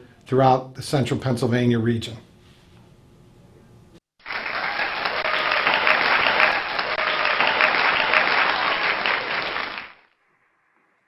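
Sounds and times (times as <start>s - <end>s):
crowd applause: 4.2s - 10.0s.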